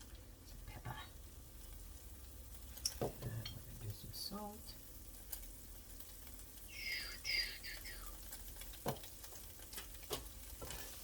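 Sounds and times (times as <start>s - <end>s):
chicken sizzling in a frying pan: 0.0s - 11.0s.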